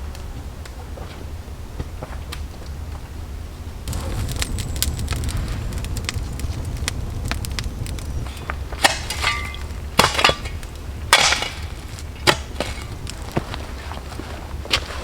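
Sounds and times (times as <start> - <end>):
low rumble: 3.8 - 14.7
sharp knocks and cracks: 3.9 - 13.8.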